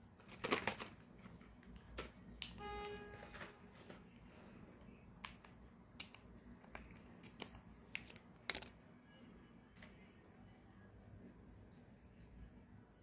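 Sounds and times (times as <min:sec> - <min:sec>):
treat container rattling: 0:08.4 - 0:08.7.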